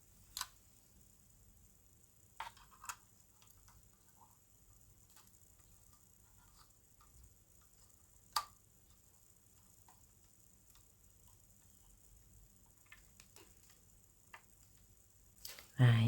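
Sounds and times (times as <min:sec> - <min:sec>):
plastic parts tapping: 0:12.6 - 0:14.9.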